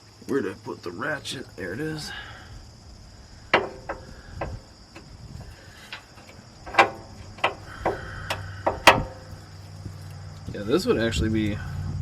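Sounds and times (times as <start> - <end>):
socket ratchet clicking: 6.7 - 9.4.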